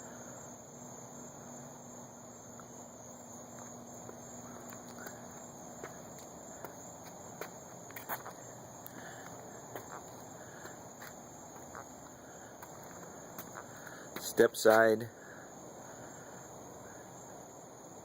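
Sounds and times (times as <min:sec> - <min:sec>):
high-pitched insect drone: 0:00.0 - 0:18.0
faint footsteps: 0:03.4 - 0:15.0.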